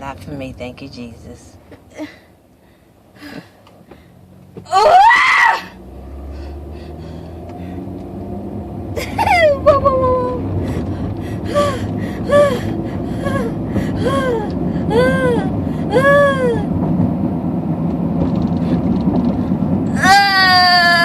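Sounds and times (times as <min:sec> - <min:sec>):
car road noise: 0:00.0 - 0:21.0
woman whimpering: 0:09.0 - 0:16.7
woman crying out in pain: 0:11.4 - 0:16.7.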